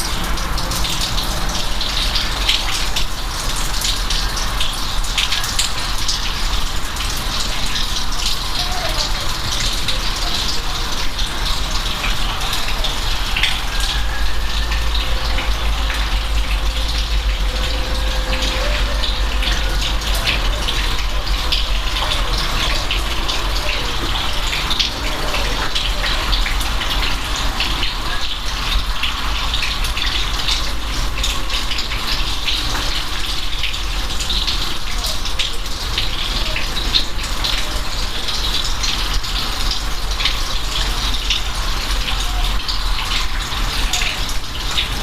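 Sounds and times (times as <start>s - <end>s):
raindrops tapping: 0.0s - 45.0s
steady rain: 0.0s - 45.0s
low rumble: 14.6s - 21.9s.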